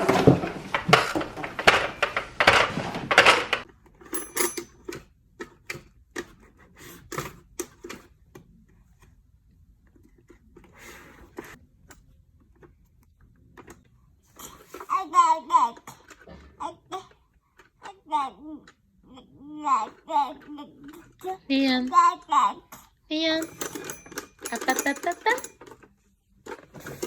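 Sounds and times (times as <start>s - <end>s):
plastic toy pieces clattering: 0.0s - 5.6s, 23.4s - 27.0s.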